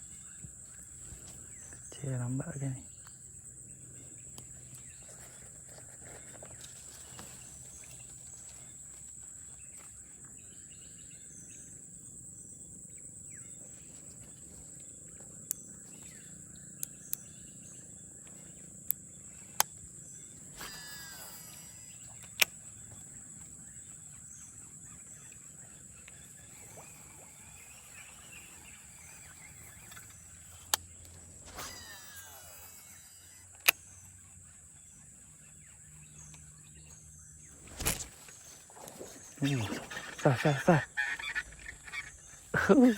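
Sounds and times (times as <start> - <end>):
high-pitched insect drone: 15.3 - 42.9.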